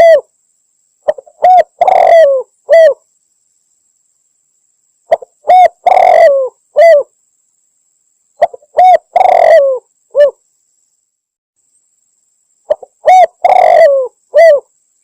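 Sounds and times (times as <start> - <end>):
dove cooing: 0.0 - 0.3, 1.0 - 3.0, 5.1 - 7.1, 8.4 - 10.4, 12.7 - 14.7.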